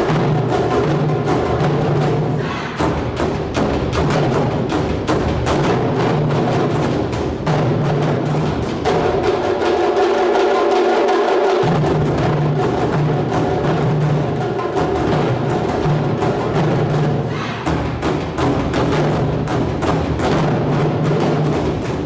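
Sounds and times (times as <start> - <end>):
taiko drums playing: 0.0 - 22.0.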